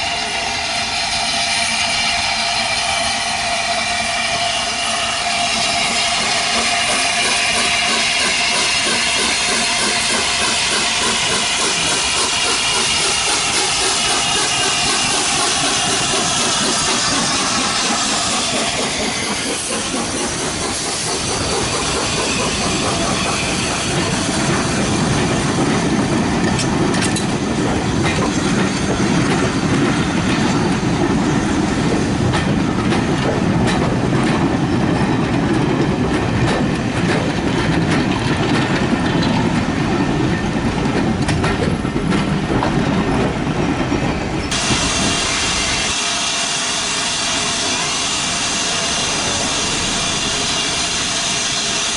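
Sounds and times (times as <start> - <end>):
steam hiss: 0.0 - 25.6, 44.5 - 51.9
train rumble: 0.0 - 51.9
train wheels clickety-clack: 0.0 - 51.9.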